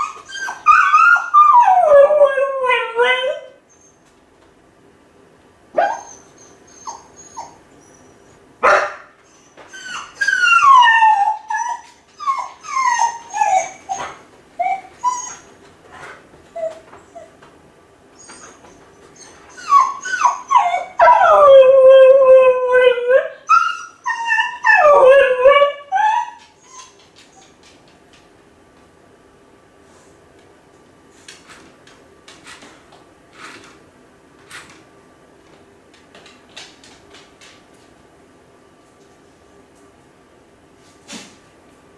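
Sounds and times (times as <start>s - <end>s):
dog whining and howling: 0.0s - 4.0s, 5.8s - 17.4s, 18.2s - 27.5s.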